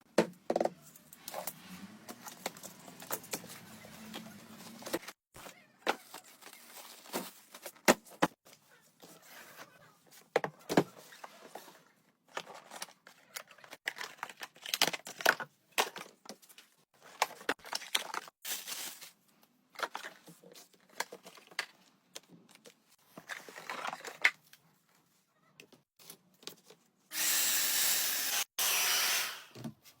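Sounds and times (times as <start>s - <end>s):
hair dryer blowing air: 27.1s - 29.5s.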